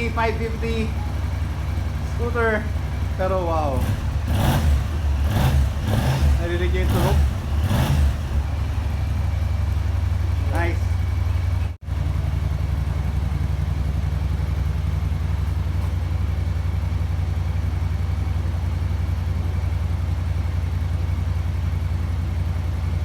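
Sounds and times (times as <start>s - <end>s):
scooter engine idling: 0.0s - 23.0s.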